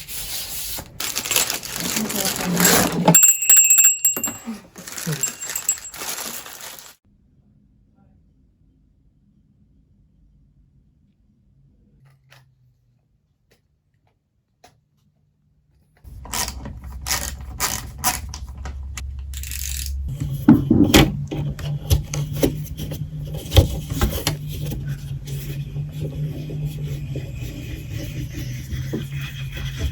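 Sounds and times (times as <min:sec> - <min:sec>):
metallic clicking and ratcheting: 0:18.9 - 0:20.1.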